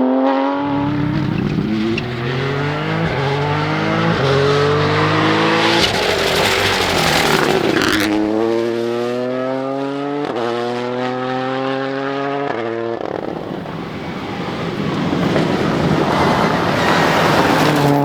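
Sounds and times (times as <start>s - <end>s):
rally car accelerating: 0.4s - 18.0s
broad rushing noise: 0.6s - 8.9s, 13.1s - 18.0s.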